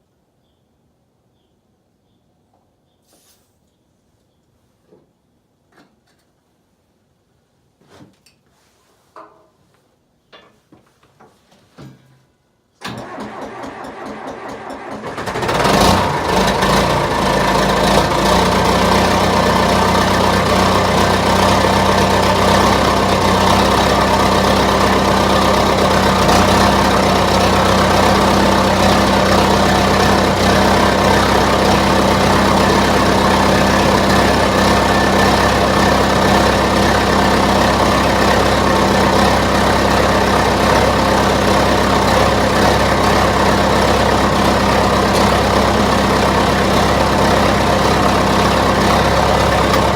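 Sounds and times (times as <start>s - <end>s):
diesel engine starting and idling: 12.8s - 49.9s.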